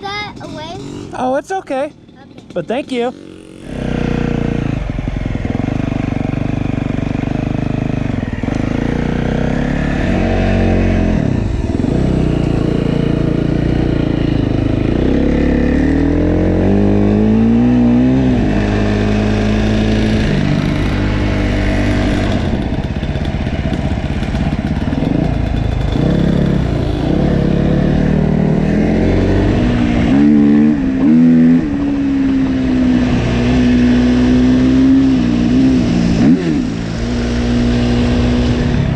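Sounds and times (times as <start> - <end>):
dirt bike engine accelerating: 0.3 - 38.9.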